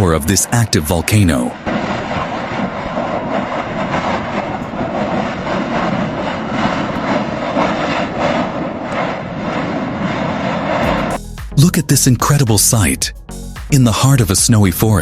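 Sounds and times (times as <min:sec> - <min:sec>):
volcano venting rushing noise: 0:00.0 - 0:10.9.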